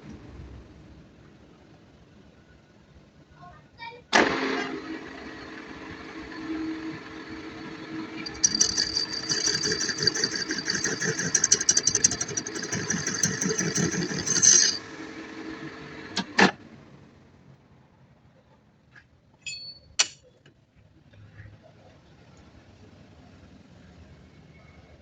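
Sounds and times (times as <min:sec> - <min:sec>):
workshop machine humming: 0:04.7 - 0:16.4.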